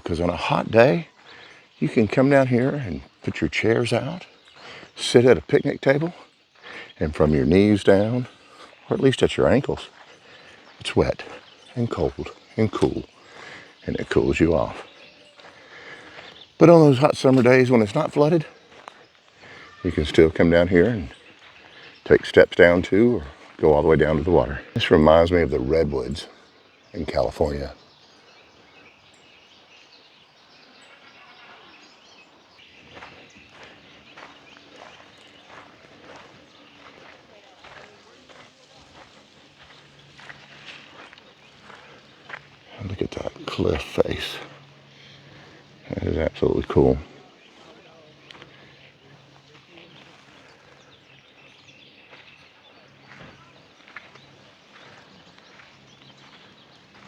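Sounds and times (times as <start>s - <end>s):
bird chirps: 0.0s - 57.0s
footsteps: 17.2s - 19.4s, 32.7s - 51.1s, 52.0s - 57.0s.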